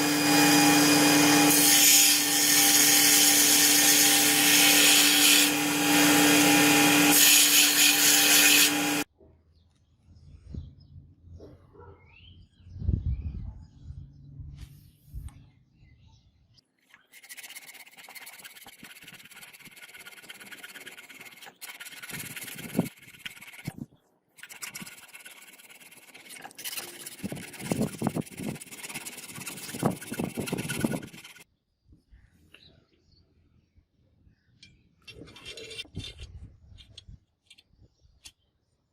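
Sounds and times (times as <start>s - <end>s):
abrasive rubbing on blade: 17.0s - 23.8s, 24.4s - 31.4s.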